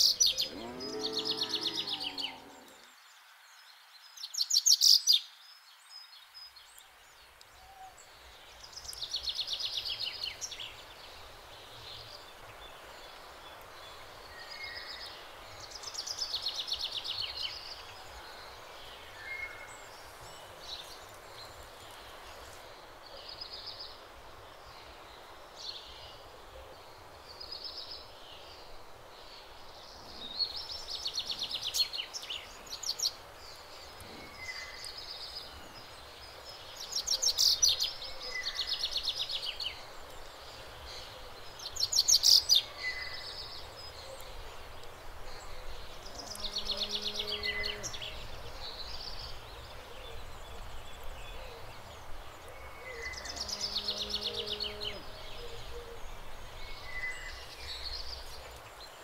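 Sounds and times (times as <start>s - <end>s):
small birds trilling and chirping: 0.0s - 59.0s
steady outdoor hiss: 0.0s - 59.0s.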